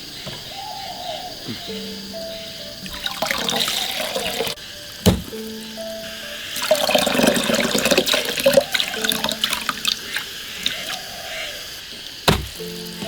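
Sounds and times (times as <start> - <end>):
water splashing in a basin: 2.8 - 5.3, 6.6 - 11.1
small knocks: 5.0 - 5.4, 12.2 - 13.0.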